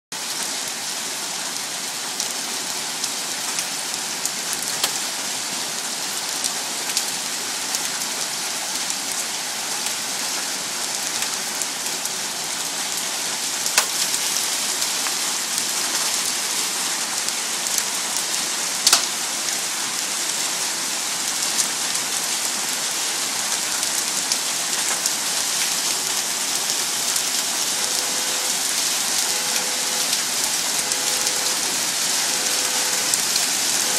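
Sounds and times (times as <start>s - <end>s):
hail rattling on hard surfaces: 13.6s - 16.4s, 17.0s - 19.2s.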